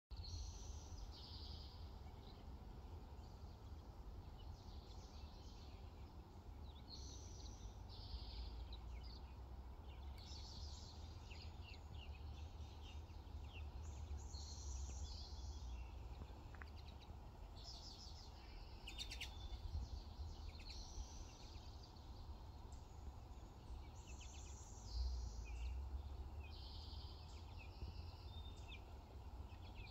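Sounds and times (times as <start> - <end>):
low steady rumble: 0.1 - 29.9
small birds singing: 0.1 - 29.9.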